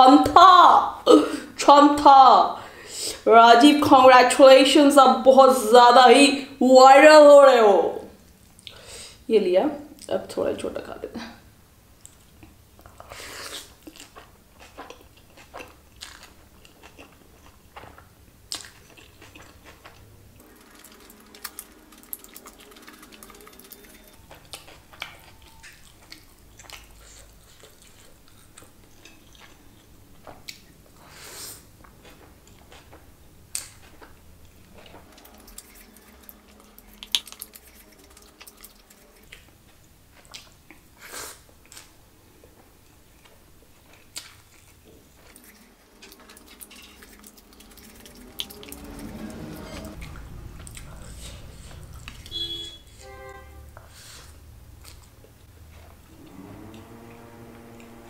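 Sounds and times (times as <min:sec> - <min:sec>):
person chewing and smacking: 0:12.0 - 0:52.8, 0:54.8 - 0:56.8.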